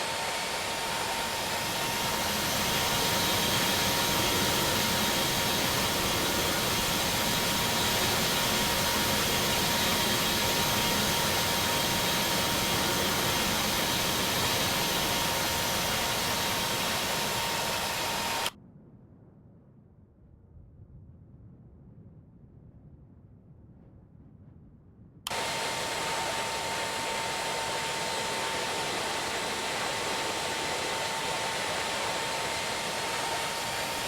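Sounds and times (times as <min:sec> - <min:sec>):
faint engine whine: 0:00.0 - 0:18.5, 0:25.3 - 0:34.0
jet engines roaring: 0:00.0 - 0:18.5, 0:25.3 - 0:34.0.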